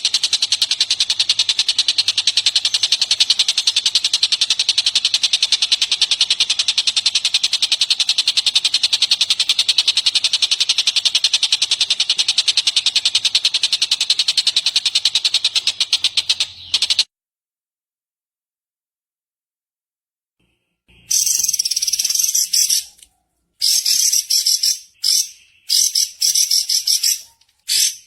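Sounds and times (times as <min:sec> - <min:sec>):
bird call of sharp high notes: 0:20.9 - 0:23.0, 0:23.6 - 0:28.0.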